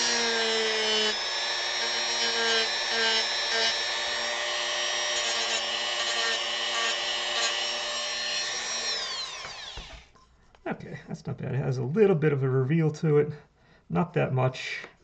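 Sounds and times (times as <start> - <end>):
rotary tool sanding wood: 0.0 - 10.1.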